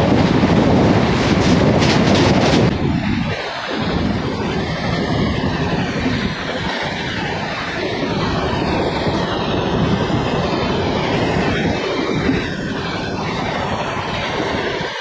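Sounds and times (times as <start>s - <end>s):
train wheels on rail: 0.0s - 4.0s.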